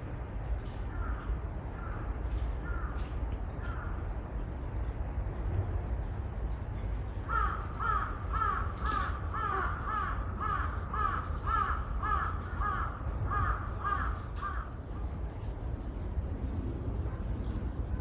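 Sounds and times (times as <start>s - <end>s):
bird cawing: 0.9s - 4.0s, 7.3s - 14.8s.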